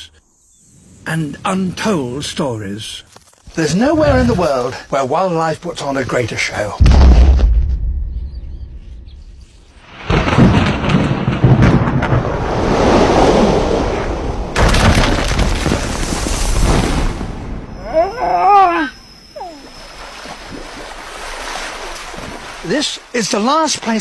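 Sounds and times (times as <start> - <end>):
wavering animal call: 17.7 - 20.2.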